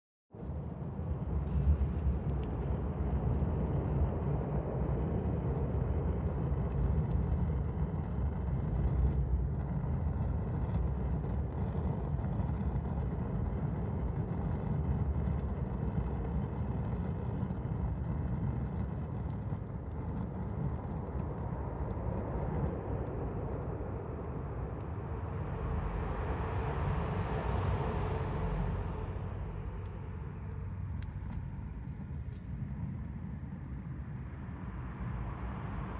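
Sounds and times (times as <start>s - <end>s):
campfire crackling: 0.4s - 35.9s
broad rushing sound: 19.5s - 30.9s.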